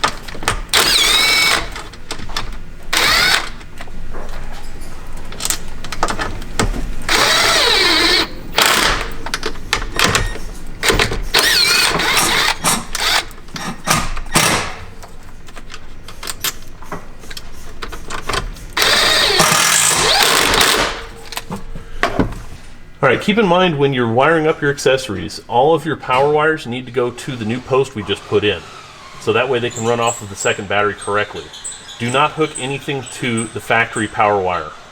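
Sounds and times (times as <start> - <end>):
cordless power driver whine: 0.0 - 3.8, 7.0 - 9.3, 10.8 - 14.8, 18.7 - 21.0
tools and wiring clattering: 0.0 - 22.8.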